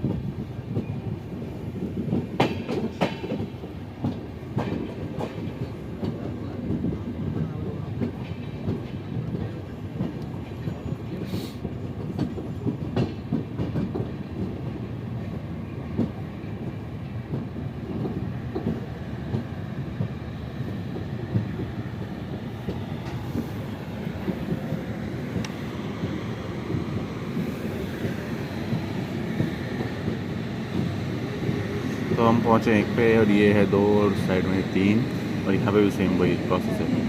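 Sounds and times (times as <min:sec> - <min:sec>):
train coaches rumbling on track: 0:00.0 - 0:37.0.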